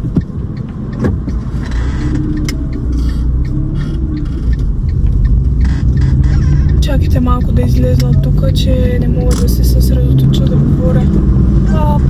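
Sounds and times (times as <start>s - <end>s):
small clicks: 0.0s - 9.6s
car interior rumble: 0.0s - 12.0s.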